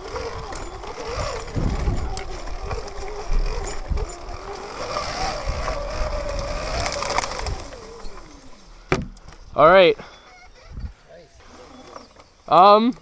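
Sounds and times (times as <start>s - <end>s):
knocks and rattles: 0.0s - 9.5s
electric motor whine: 0.0s - 9.6s.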